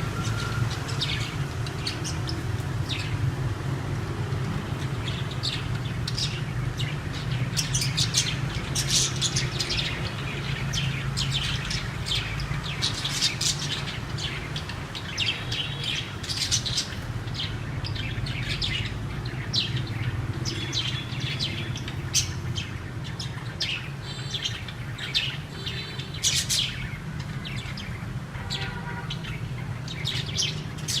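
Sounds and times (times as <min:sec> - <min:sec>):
budgerigars chirping: 0:04.9 - 0:31.0.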